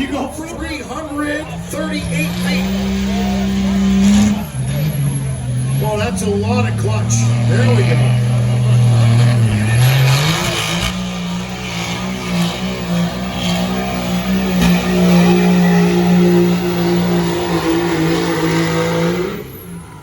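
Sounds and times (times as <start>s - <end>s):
truck engine at full throttle: 0.0s - 20.0s.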